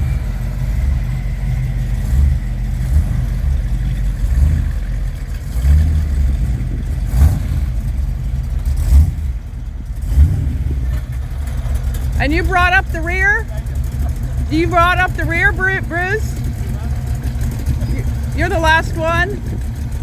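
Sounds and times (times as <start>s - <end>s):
car engine rumbling past: 0.0s - 20.0s.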